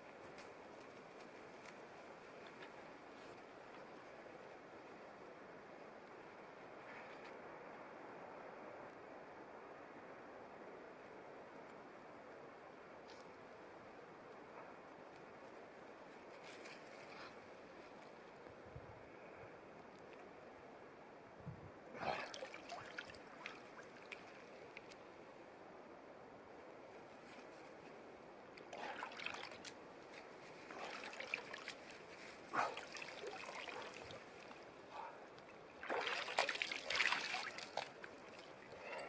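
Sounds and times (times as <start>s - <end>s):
faint steady hiss: 0.0s - 39.0s
water splashing and trickling: 22.0s - 25.1s, 28.6s - 39.0s.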